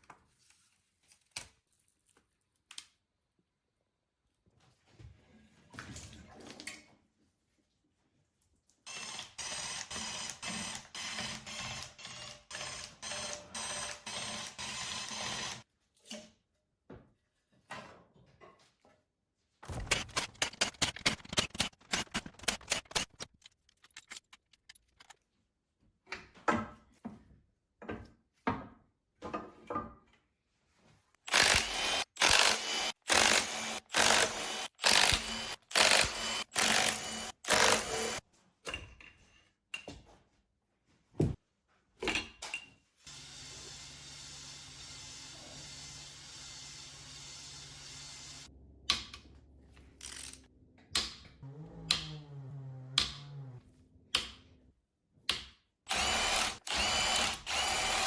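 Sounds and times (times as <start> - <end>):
tool clicking and whirring: 8.9 - 15.6, 19.6 - 25.2, 31.2 - 38.2, 49.9 - 53.6, 55.3 - 58.0.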